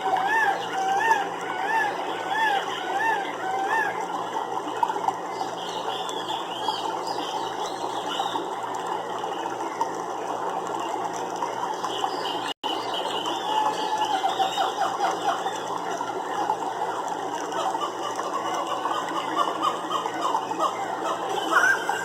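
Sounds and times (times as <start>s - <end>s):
chirring chorus: 0.0s - 4.7s, 12.8s - 22.0s.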